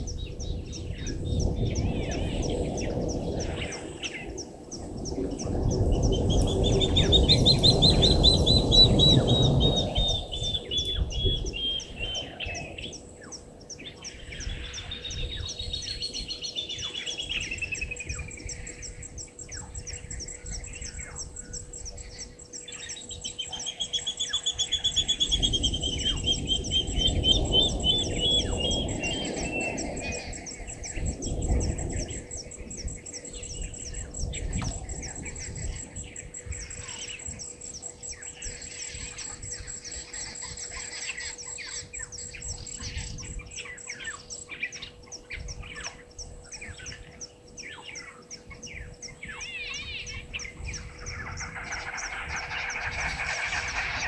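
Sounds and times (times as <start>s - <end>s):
birds singing descending notes: 0.0s - 54.0s
low rushing noise: 50.5s - 54.0s.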